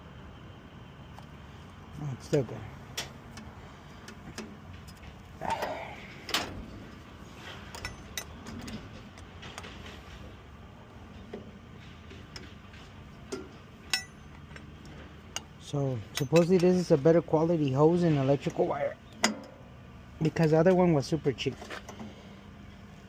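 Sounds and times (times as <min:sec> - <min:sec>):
steady low hum: 0:00.0 - 0:23.0
ringing metal clink: 0:13.9 - 0:14.7, 0:16.1 - 0:16.8.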